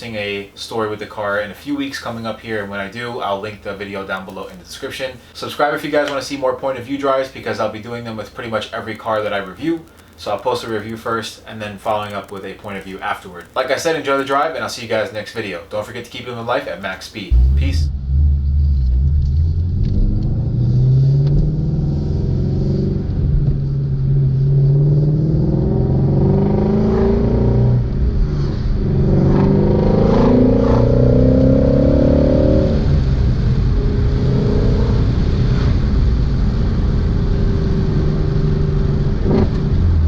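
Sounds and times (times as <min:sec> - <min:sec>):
car engine accelerating hard: 0:17.3 - 0:40.0.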